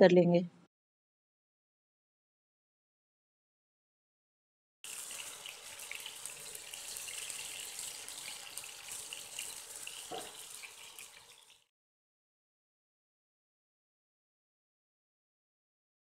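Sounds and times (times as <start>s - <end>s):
food sizzling in hot oil: 4.8s - 11.7s.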